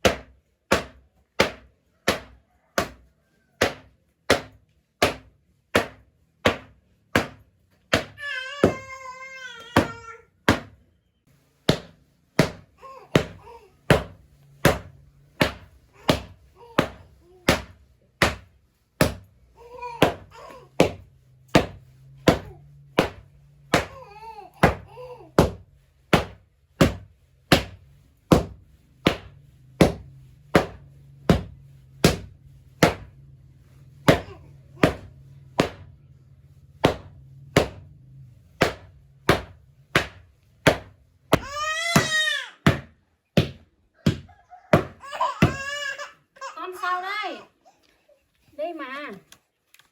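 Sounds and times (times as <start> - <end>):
child crying out: 8.2 - 10.2, 41.4 - 42.6, 45.0 - 46.7.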